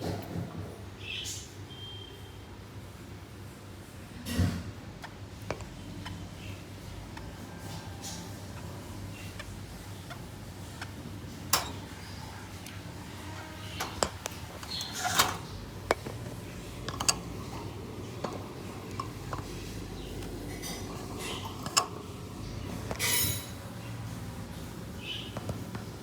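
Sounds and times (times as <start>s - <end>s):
low steady hum: 5.2s - 26.0s
small clicks and clinks: 11.5s - 22.1s
scraping rustle: 11.5s - 24.9s.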